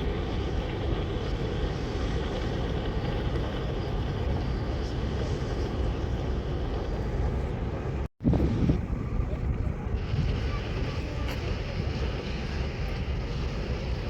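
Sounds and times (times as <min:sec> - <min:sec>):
ship engine drone: 0:00.0 - 0:14.0.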